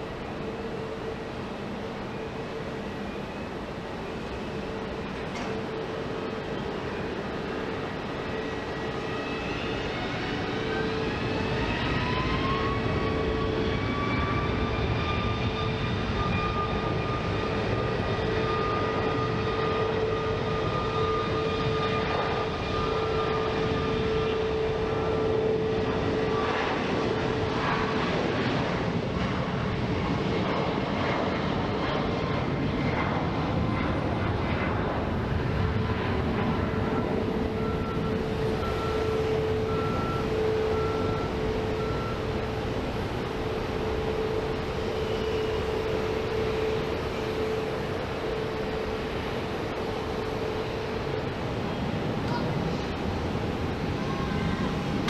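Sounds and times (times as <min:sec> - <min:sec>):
jet engines spooling up: 0:33.4 - 0:55.0.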